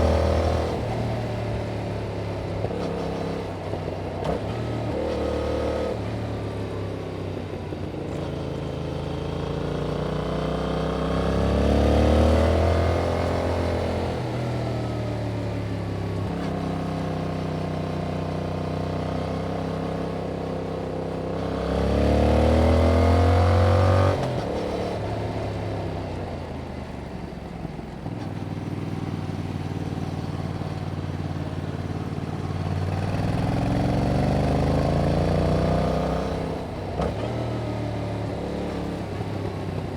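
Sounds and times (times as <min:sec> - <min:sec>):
motorcycle engine revving: 0:28.4 - 0:39.9.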